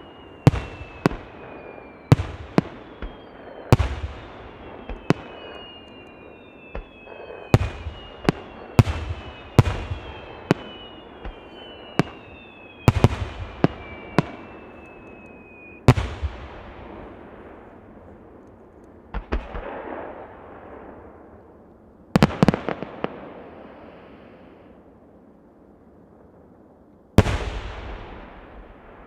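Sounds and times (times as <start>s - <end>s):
high descending whistling: 0.0s - 15.9s.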